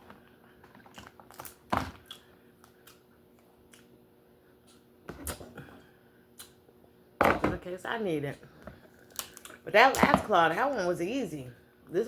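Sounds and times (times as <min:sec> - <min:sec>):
lobster shell cracking: 0:09.0 - 0:09.6.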